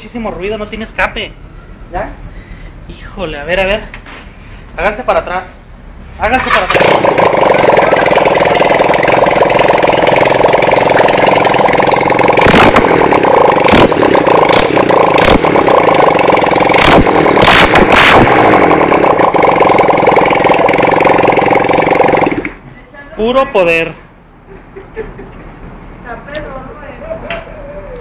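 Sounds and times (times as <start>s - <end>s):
motorcycle engine bubbling loudly: 6.4s - 22.6s
sharp exhaust pops: 6.4s - 22.6s.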